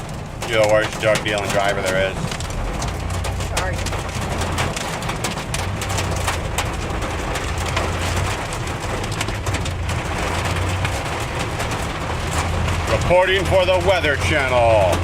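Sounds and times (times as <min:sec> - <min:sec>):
engine and road rumble: 0:00.0 - 0:15.0
rain and hail pelting a car: 0:00.0 - 0:15.0.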